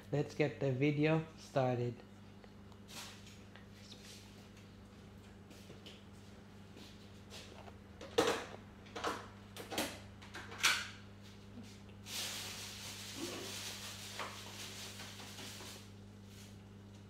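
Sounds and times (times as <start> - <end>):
soft chewing: 2.0 - 7.8.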